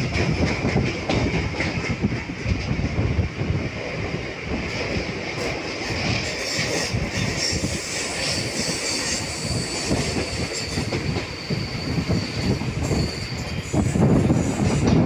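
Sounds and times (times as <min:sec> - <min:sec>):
high wheel squeal: 0:06.3 - 0:14.9.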